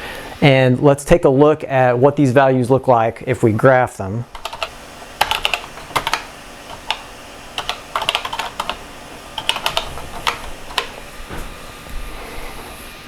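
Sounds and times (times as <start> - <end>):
typing on computer keyboard: 4.4 - 11.0.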